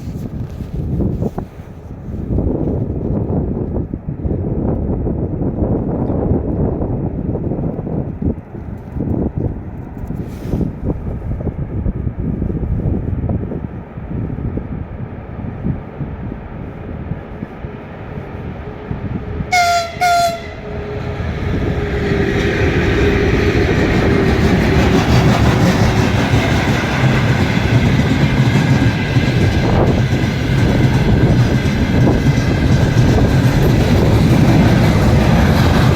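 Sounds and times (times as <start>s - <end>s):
train rumbling past: 0.0s - 35.9s
locomotive horn blasts: 19.5s - 21.0s.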